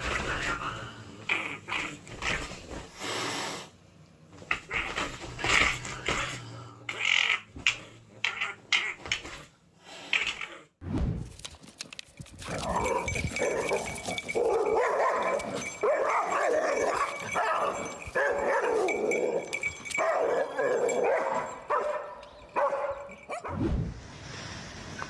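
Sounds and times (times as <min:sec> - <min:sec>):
dog barking and yipping: 0:12.5 - 0:23.6.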